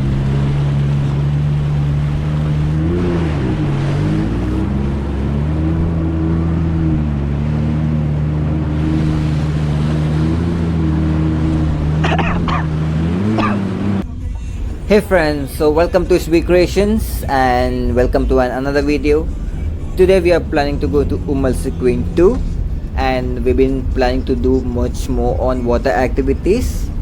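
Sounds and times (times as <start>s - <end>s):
jet ski engine running: 0.0s - 27.0s.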